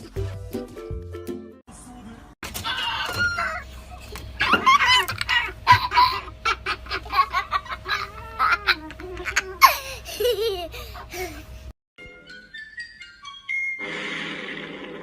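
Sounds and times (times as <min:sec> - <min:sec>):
person laughing in bursts: 0:04.4 - 0:11.5.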